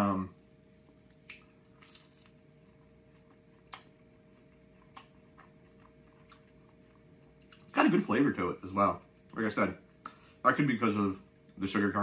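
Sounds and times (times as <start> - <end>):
faint steady hum: 0.0 - 12.0
chewing clicks: 3.1 - 7.7.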